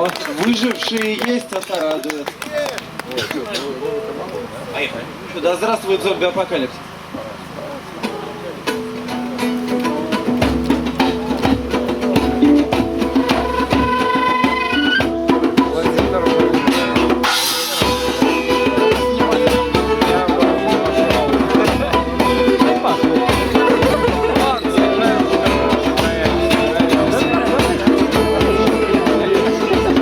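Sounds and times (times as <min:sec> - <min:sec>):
live band playing: 0:07.5 - 0:30.0.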